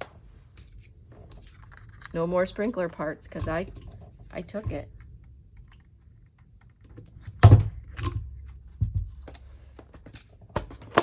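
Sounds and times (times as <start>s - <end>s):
plastic parts box clicks and knocks: 6.9s - 11.0s.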